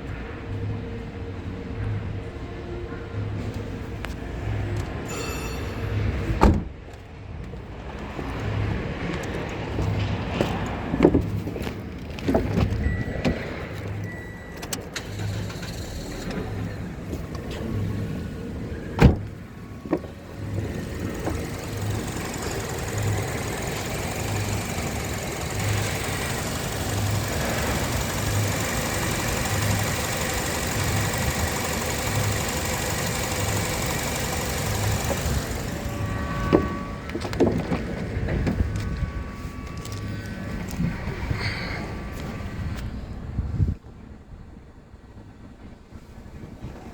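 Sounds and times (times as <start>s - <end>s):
car engine running: 15.0s - 42.9s.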